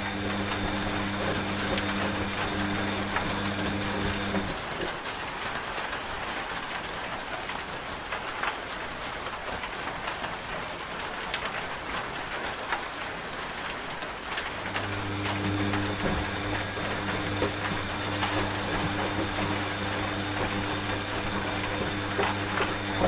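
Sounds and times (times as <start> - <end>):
washing machine motor hum: 0.0 - 4.8, 14.4 - 23.0
rain falling: 0.0 - 23.0.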